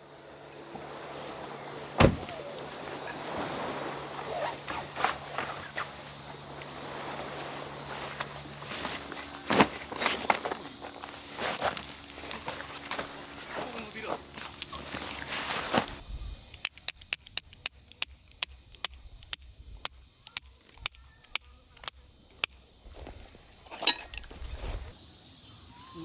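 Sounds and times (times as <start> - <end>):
soft outdoor hiss: 0.0 - 26.0
footsteps: 0.5 - 16.0, 22.9 - 25.0
sharp knocks: 2.0 - 2.4
high-pitched insect buzzing: 11.2 - 23.6.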